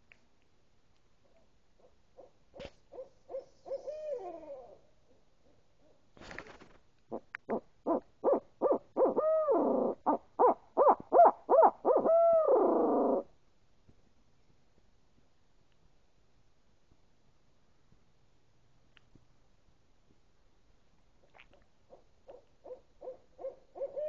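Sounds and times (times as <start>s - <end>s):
owl hooting: 1.8s - 4.9s, 7.1s - 13.3s, 22.3s - 24.0s.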